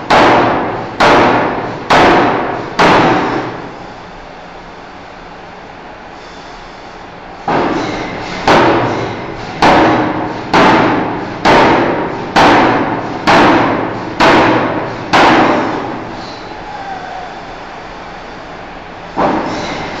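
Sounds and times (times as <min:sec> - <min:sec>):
forging hammer striking steel: 0:00.0 - 0:03.7, 0:07.5 - 0:16.6, 0:19.2 - 0:20.0.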